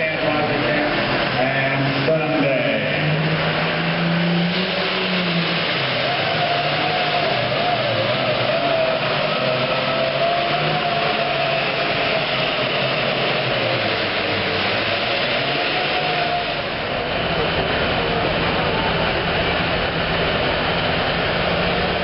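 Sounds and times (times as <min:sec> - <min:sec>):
diesel engine running at high revs: 0:00.0 - 0:22.0.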